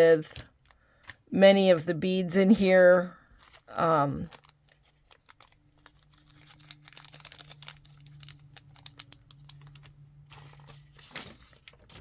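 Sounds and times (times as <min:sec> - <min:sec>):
plastic packaging crinkling: 0:03.3 - 0:12.0.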